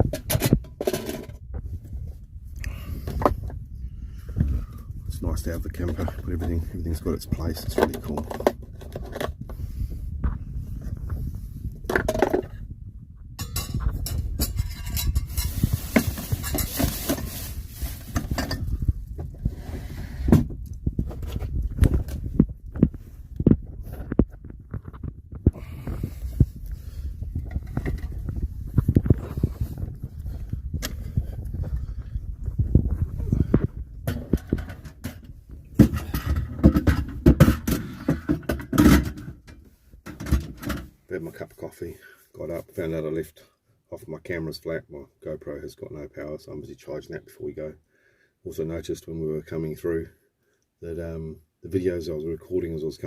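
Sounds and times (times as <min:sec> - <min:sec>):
objects knocking and clattering: 0:00.0 - 0:01.7, 0:07.6 - 0:09.6, 0:11.8 - 0:12.7, 0:13.3 - 0:19.5, 0:20.2 - 0:26.5, 0:27.3 - 0:41.0
steady low rumble: 0:00.0 - 0:37.3
kitchenware clinking: 0:13.4 - 0:15.6.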